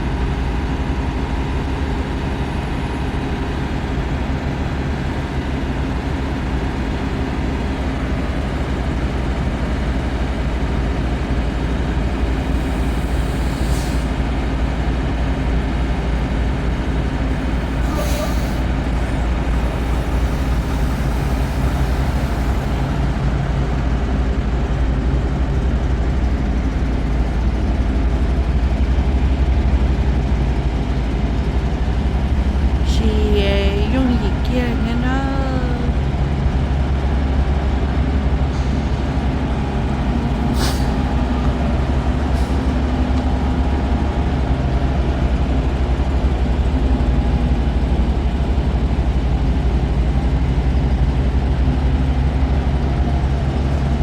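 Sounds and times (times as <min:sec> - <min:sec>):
road noise: 0:00.0 - 0:25.8, 0:37.2 - 0:45.6
truck engine drone: 0:00.0 - 0:54.0.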